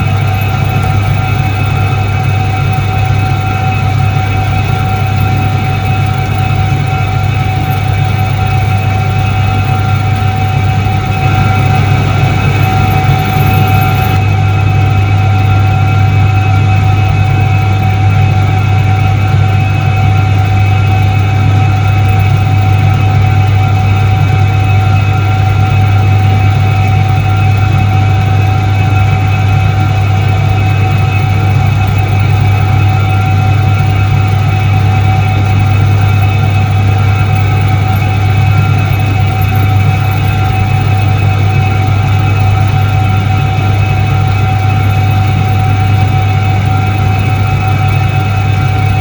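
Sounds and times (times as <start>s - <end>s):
washing machine motor humming: 0.0s - 17.4s.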